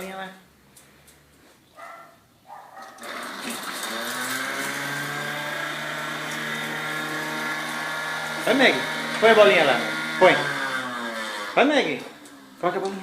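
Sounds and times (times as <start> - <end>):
electric motor spinning up: 3.0 - 13.0.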